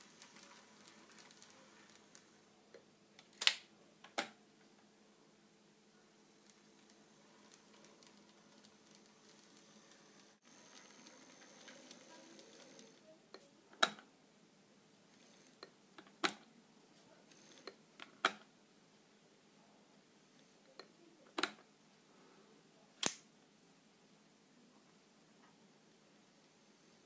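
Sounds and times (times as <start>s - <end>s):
sharp mechanical clicks: 23.0s - 23.2s.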